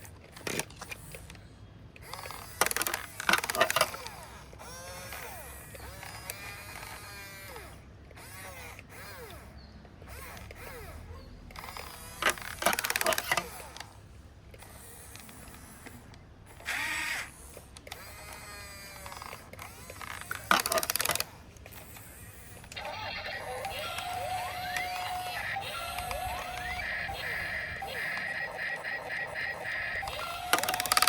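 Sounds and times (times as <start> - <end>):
toy electric motors whirring: 0.0 - 31.0.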